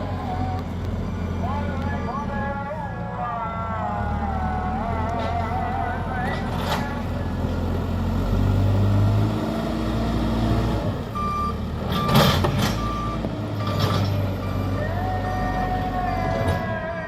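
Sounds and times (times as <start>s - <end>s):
diesel engine running: 0.0s - 17.0s
reversing alarm beeping: 11.2s - 15.6s.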